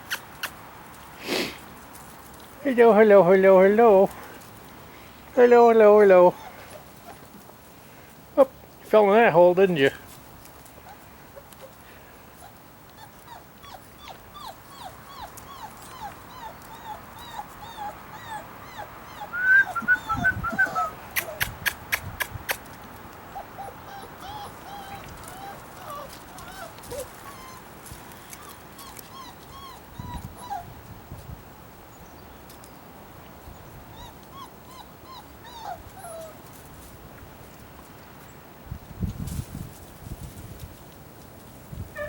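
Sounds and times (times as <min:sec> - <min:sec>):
puppies whimpering and squeaking: 0:06.0 - 0:07.2, 0:12.4 - 0:22.6, 0:23.3 - 0:30.7, 0:33.9 - 0:36.5.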